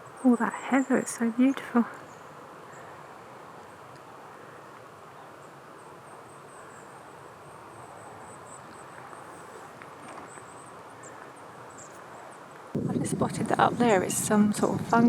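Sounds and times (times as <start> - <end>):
background hiss: 0.0 - 15.0
insects chirping: 5.4 - 12.5.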